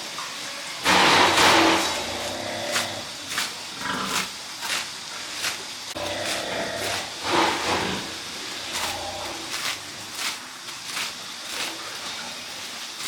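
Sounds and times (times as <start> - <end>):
pigs squealing: 3.8 - 4.4.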